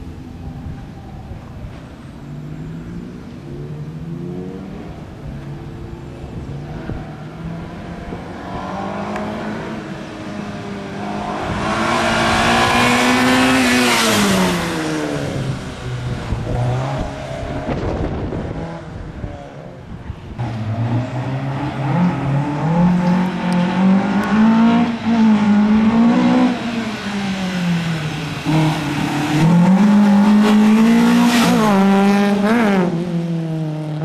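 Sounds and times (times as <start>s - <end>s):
car engine revving: 2.6s - 19.3s, 20.4s - 34.0s.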